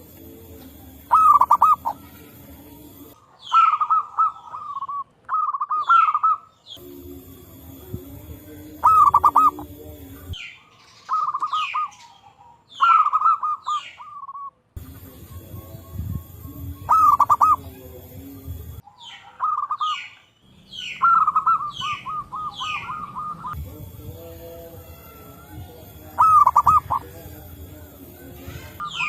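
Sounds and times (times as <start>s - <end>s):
doves cooing: 0.0s - 29.0s
low background hum: 6.7s - 10.4s, 14.8s - 18.8s, 20.5s - 29.0s.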